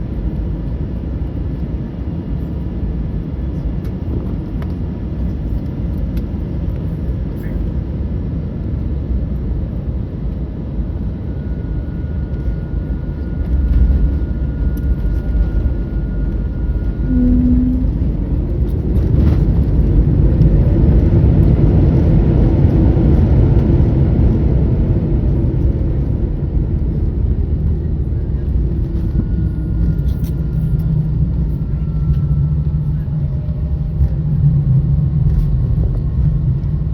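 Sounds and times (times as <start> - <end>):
airplane cabin engine rumble: 0.0 - 36.9
rising engine whine: 0.0 - 36.9
brief low tone: 12.0 - 19.3, 27.7 - 34.2.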